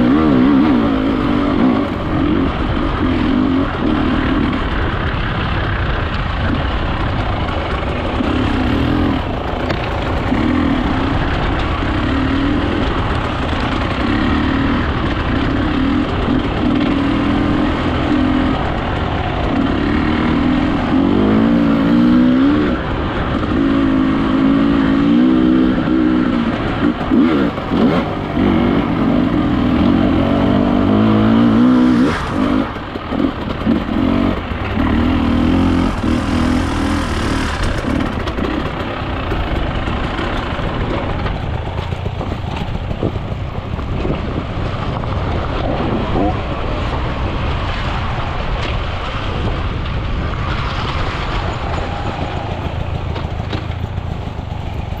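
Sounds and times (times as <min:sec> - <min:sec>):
dirt bike engine revving: 0:00.0 - 0:43.2.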